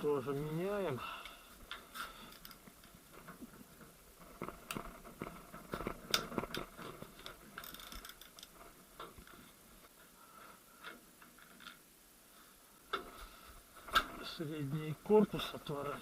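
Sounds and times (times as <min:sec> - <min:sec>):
metal parts clicking and clinking: 0:02.3 - 0:03.0, 0:06.1 - 0:08.6.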